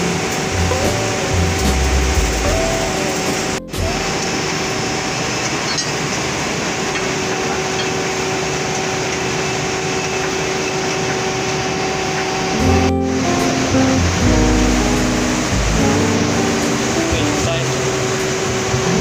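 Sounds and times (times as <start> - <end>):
low hum: 0.0 - 5.8
factory machinery roar: 0.0 - 19.0.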